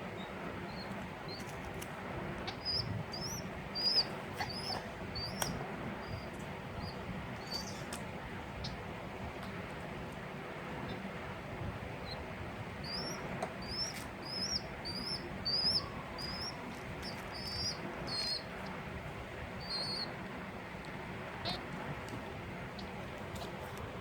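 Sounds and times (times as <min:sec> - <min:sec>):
baby bird chirping: 0:00.7 - 0:01.5, 0:02.4 - 0:07.9, 0:12.8 - 0:18.5, 0:19.6 - 0:20.1.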